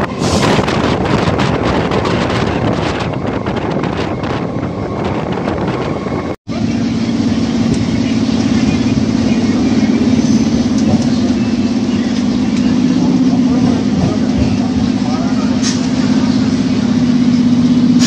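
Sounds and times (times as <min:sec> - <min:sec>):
wind rushing over microphone: 0:00.0 - 0:06.4
low electric train hum: 0:00.0 - 0:18.0.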